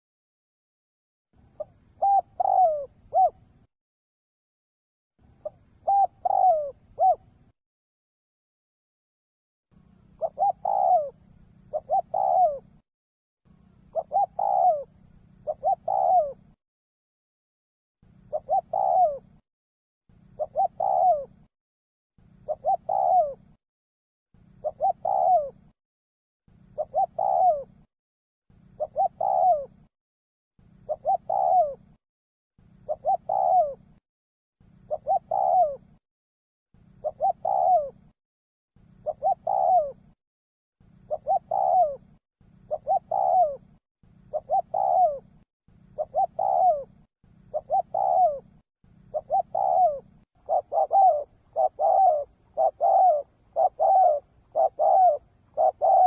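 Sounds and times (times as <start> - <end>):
dove cooing: 1.4 - 3.6, 5.3 - 7.5, 10.0 - 12.8, 13.7 - 16.6, 18.1 - 19.4, 20.2 - 21.5, 22.3 - 23.6, 24.4 - 25.8, 26.6 - 27.9, 28.6 - 29.9, 30.7 - 32.0, 32.7 - 34.0, 34.7 - 36.0, 36.8 - 38.1, 38.8 - 40.2, 40.9 - 56.0.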